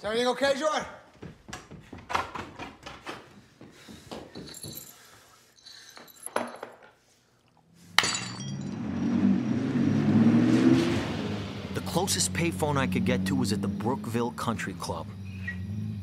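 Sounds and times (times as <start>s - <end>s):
light clinks and knocks: 4.2s - 7.0s
car engine revving: 8.6s - 16.0s.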